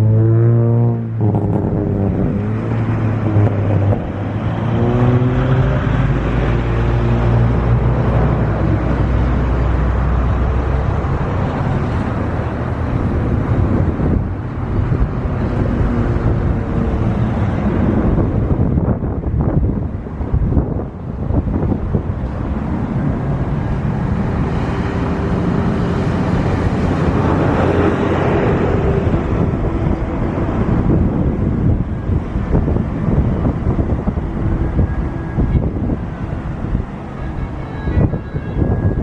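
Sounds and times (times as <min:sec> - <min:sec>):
loud engine rumble: 0:00.0 - 0:39.0.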